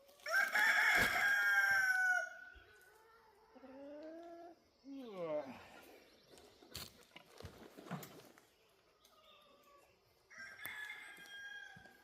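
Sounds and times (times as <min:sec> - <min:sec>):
rooster crowing: 0:00.2 - 0:02.5, 0:10.3 - 0:12.0.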